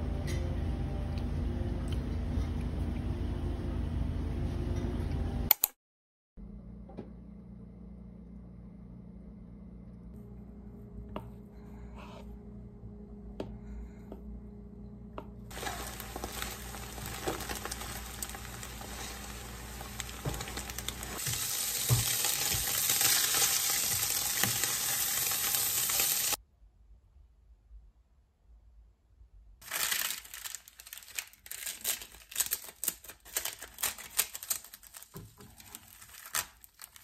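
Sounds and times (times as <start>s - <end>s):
low steady hum: 0.0s - 5.5s, 6.4s - 23.7s
egg frying in a pan: 15.5s - 26.4s
ham sizzling: 15.5s - 26.4s.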